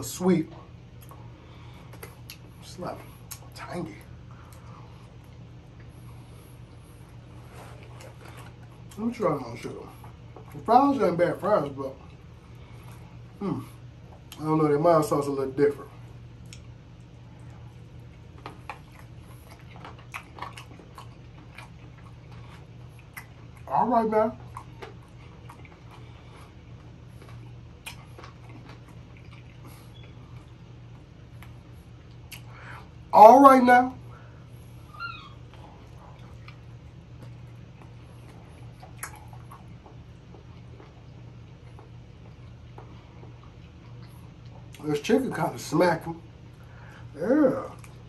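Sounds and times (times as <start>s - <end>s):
low steady hum: 0.0s - 48.0s
man chewing: 0.5s - 14.5s, 15.8s - 33.1s, 34.0s - 44.8s, 46.3s - 48.0s
soft mouth clicks and smacks: 0.8s - 3.6s, 16.1s - 23.7s, 24.4s - 33.0s, 35.3s - 44.8s, 47.8s - 48.0s.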